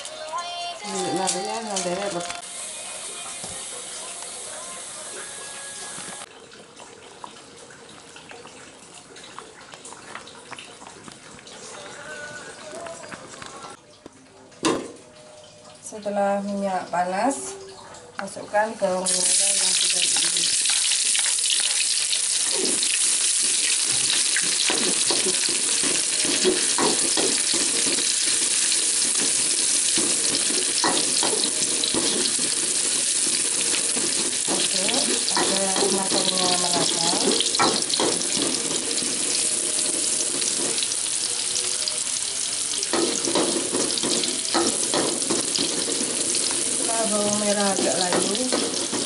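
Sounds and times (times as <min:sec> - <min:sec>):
shallots sizzling in hot oil: 0:00.0 - 0:06.3, 0:19.0 - 0:49.0.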